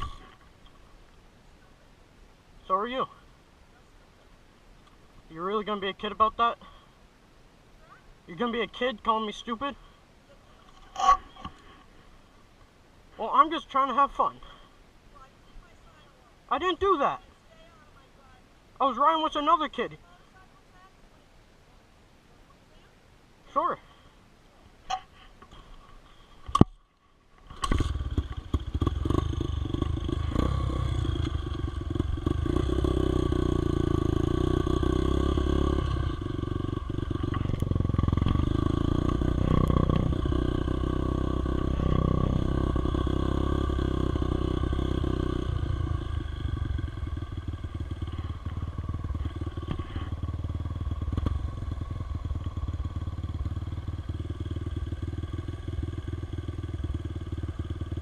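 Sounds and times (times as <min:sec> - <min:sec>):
motorcycle engine running: 0:00.0 - 0:00.9, 0:27.5 - 0:58.0.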